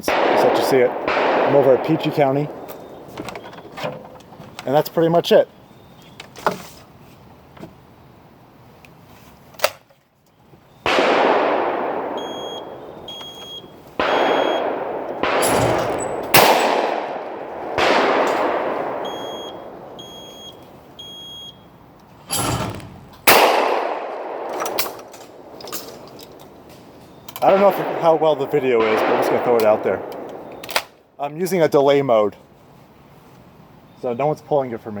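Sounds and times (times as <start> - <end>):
shotgun shots: 0.0 - 3.4, 10.8 - 20.3, 22.3 - 31.0
short electronic beeps: 12.2 - 14.6, 19.0 - 21.7.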